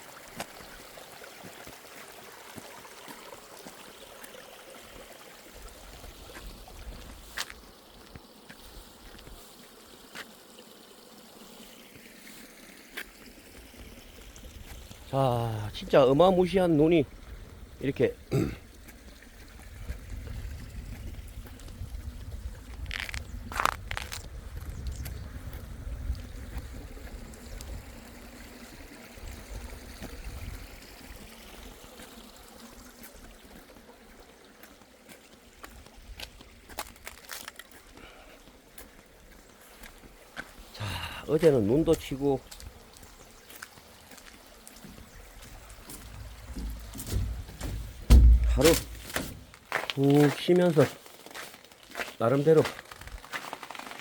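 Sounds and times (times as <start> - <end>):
spring water trickling: 0.0 - 54.0.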